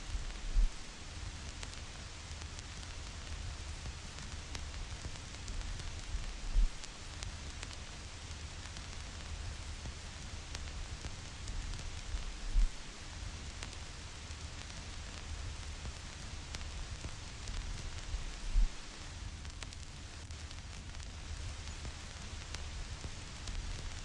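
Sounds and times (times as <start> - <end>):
low rumble: 0.0 - 0.8, 12.2 - 12.8, 18.0 - 18.8
vinyl record crackle and hiss: 0.0 - 24.0.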